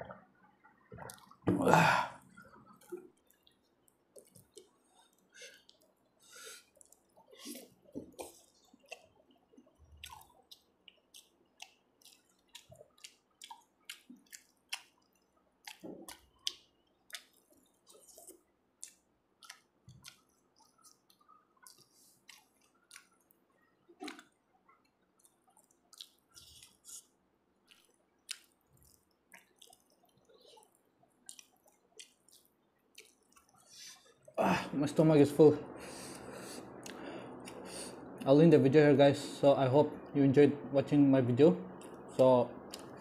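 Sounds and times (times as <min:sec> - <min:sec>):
person chewing: 0:02.8 - 0:05.9, 0:06.5 - 0:23.4, 0:24.0 - 0:34.3, 0:35.7 - 0:38.2, 0:41.8 - 0:43.0
wet clicks and lip smacks: 0:02.8 - 0:05.9, 0:09.9 - 0:23.4, 0:24.0 - 0:27.1, 0:27.7 - 0:33.7, 0:36.8 - 0:38.3.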